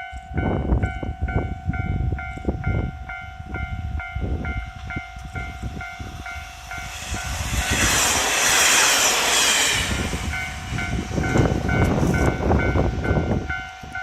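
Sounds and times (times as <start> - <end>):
level crossing warning bell: 0.0 - 7.0, 10.4 - 14.0
diesel railcars rumbling: 0.0 - 14.0
rushing hiss of passing train: 2.1 - 14.0.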